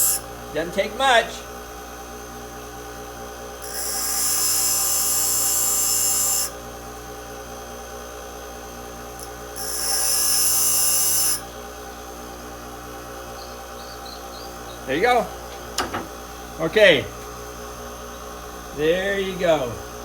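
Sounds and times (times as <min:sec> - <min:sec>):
drill bit grinding on wheel: 0:00.0 - 0:00.3, 0:03.6 - 0:06.6, 0:09.2 - 0:11.6
bench grinder motor running: 0:00.0 - 0:20.0.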